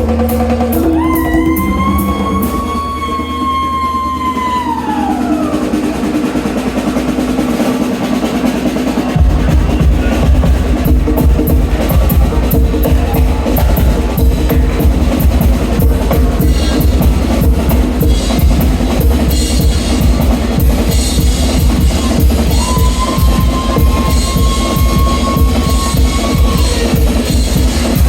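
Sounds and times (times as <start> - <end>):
drum kit playing a beat: 0.0 - 28.0
held low tones: 0.4 - 5.7.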